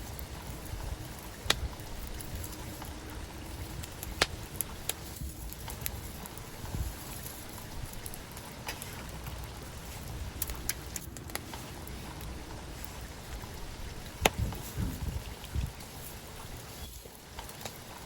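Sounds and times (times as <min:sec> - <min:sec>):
wood fire crackling: 0:00.0 - 0:18.0
sharp pops and snaps: 0:01.2 - 0:03.0, 0:03.8 - 0:12.9, 0:14.0 - 0:16.0, 0:17.3 - 0:18.0.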